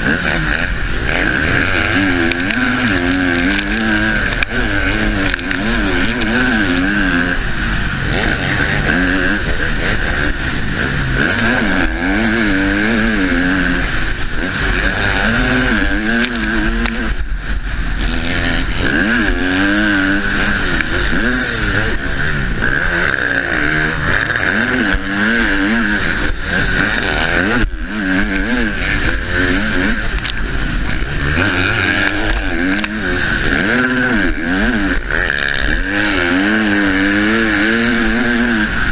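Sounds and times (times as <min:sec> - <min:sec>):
motocross bike engine racing: 0:00.0 - 0:38.9.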